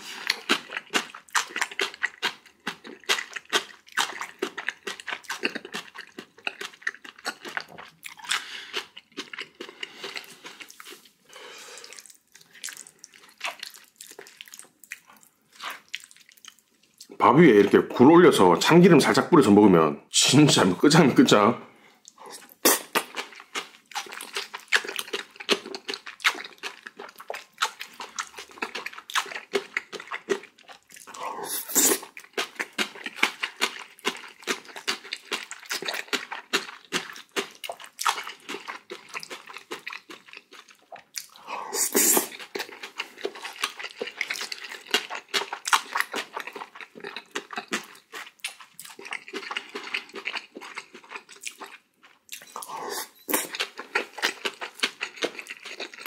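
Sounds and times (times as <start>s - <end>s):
chewing mouth clicks: 22.0s - 56.0s.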